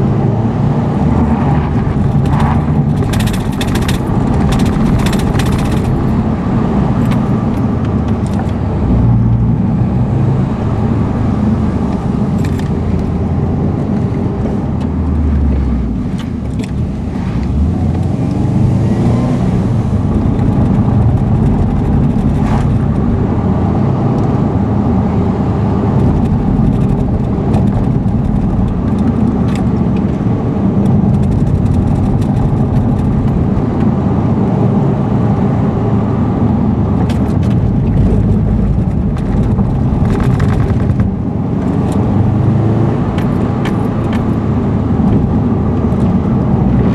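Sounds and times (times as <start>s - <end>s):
car engine and tyre noise: 0.0s - 46.9s
light clicks and rattles: 2.0s - 6.2s.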